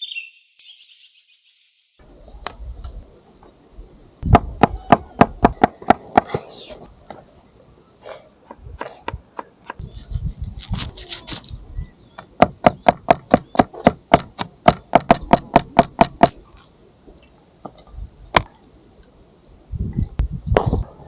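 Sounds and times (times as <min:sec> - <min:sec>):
low thuds: 0:04.2 - 0:06.4, 0:19.8 - 0:21.0.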